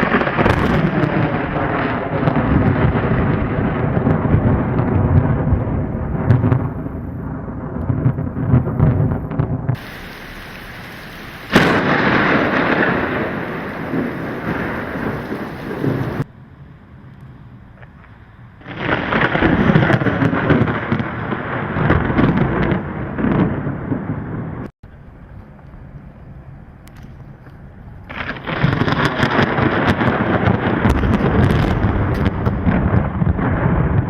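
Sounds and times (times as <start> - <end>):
thunder rumbling: 0.0 - 16.3, 18.6 - 24.6, 28.1 - 34.0
rain hiss: 9.8 - 16.3.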